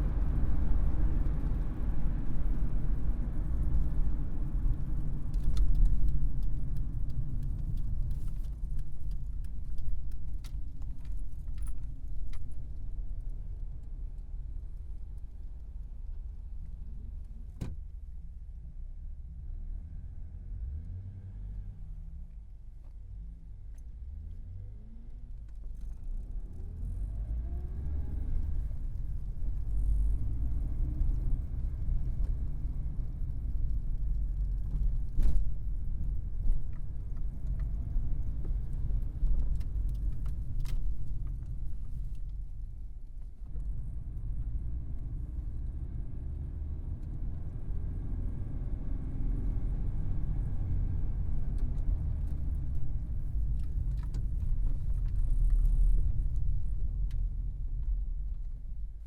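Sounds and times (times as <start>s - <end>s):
car engine accelerating: 23.9s - 42.1s, 43.4s - 58.8s.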